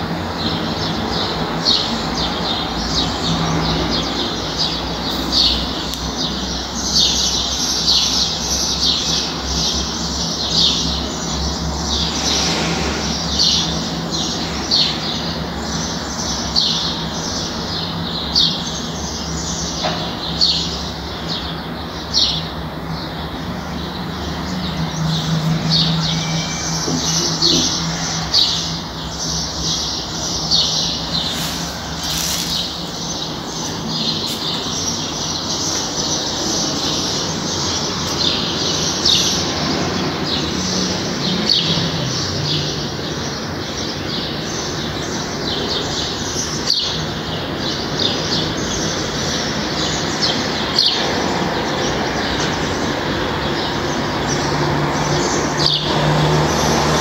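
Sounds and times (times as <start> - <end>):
distant traffic hum: 0.0 - 57.0
small birds chirping: 0.4 - 57.0.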